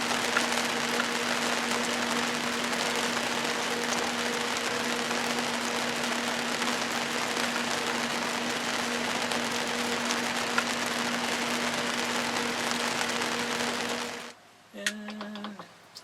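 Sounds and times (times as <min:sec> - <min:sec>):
steady hiss: 0:00.0 - 0:14.4
low steady hum: 0:00.0 - 0:16.0.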